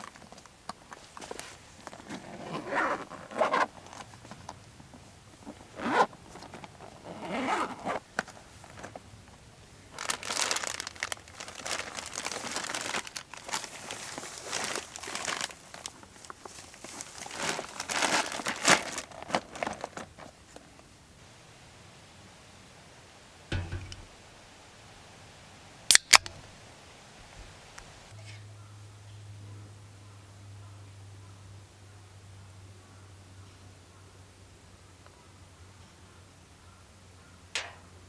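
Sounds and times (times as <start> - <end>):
rasping rustling handling noise: 10.0 - 20.7.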